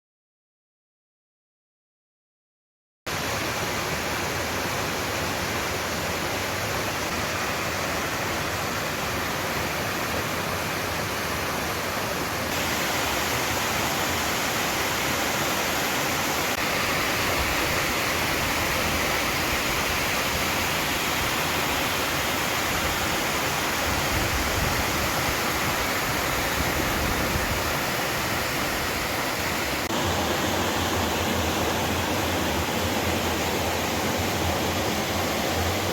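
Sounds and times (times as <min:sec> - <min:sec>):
waterfall rushing: 0:03.1 - 0:35.9.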